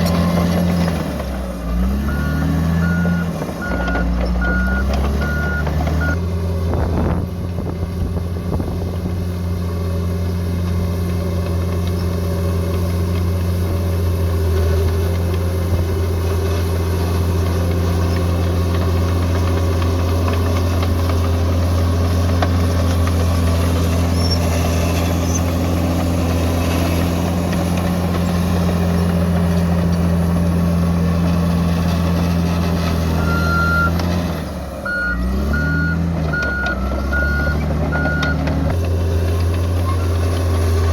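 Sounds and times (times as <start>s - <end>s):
diesel engine running: 0.0s - 40.9s
reversing beeper: 2.0s - 6.2s, 33.2s - 34.0s, 34.8s - 38.4s.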